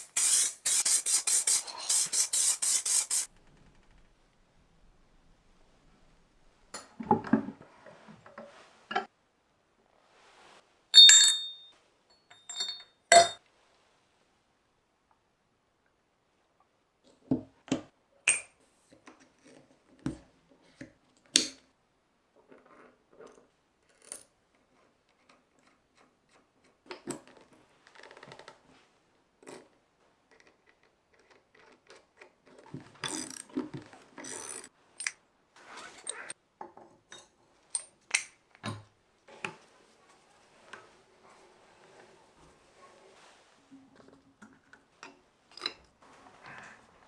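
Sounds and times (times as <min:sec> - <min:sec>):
rubbing or scraping: 0:00.0 - 0:03.3
metal tools clinking: 0:11.0 - 0:11.7, 0:12.3 - 0:13.4.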